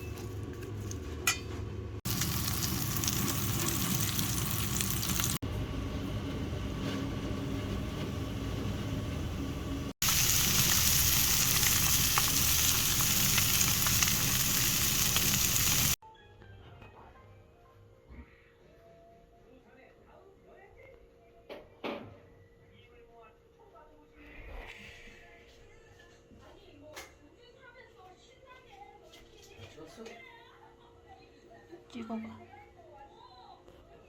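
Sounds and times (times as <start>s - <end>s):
food sizzling in a frying pan: 2.1s - 5.4s, 10.0s - 16.0s.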